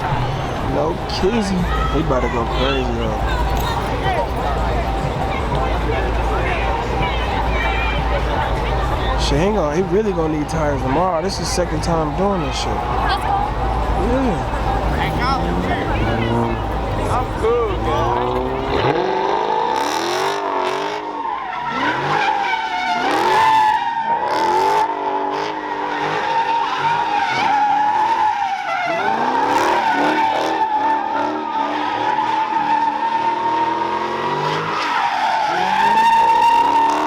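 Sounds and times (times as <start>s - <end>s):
engine revving: 0.0s - 21.1s, 21.7s - 32.1s, 33.2s - 37.0s
tyres squealing: 26.2s - 37.0s.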